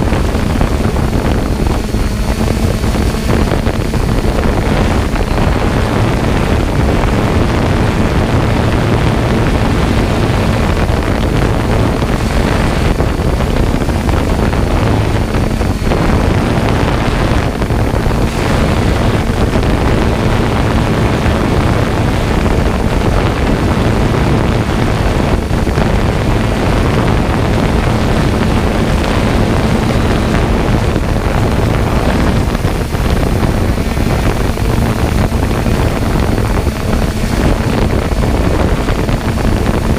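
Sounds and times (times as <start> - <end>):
faint steady hum: 0.0 - 39.9
low mechanical rumble: 0.0 - 39.9
wind buffeting microphone: 0.0 - 39.9.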